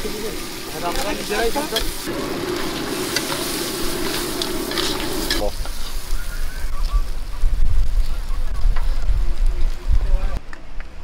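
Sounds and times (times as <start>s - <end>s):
crabs sizzling in oil: 0.0s - 9.0s
metal spatula scraping pan: 1.7s - 6.0s.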